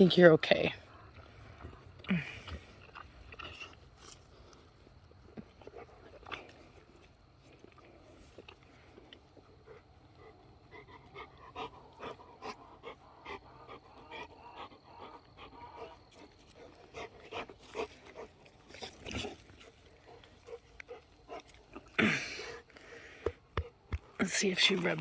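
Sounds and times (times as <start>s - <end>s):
puppy panting: 8.9s - 21.6s, 22.6s - 25.0s.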